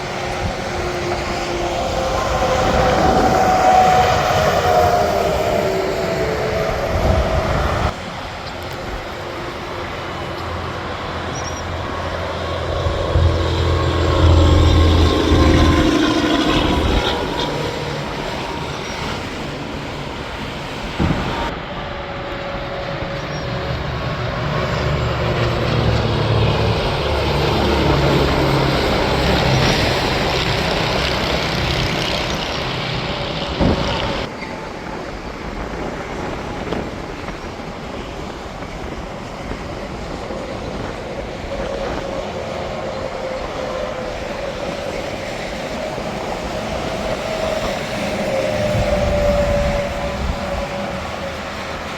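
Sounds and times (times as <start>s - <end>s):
diesel trucks droning: 0.0s - 34.3s
tyres roaring on pavement: 0.0s - 35.9s, 38.5s - 51.9s.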